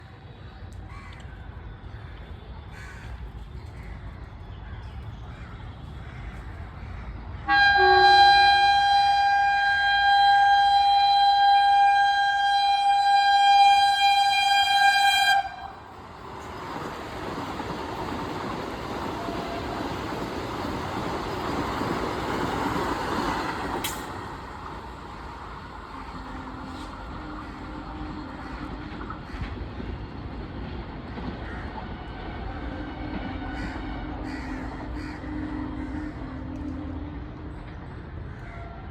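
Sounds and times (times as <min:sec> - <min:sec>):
train rumble: 0:00.0 - 0:38.9
train passing with rushing roar: 0:01.5 - 0:38.9
train horn blast: 0:07.4 - 0:15.9, 0:19.0 - 0:20.3, 0:25.9 - 0:29.3, 0:31.8 - 0:37.8.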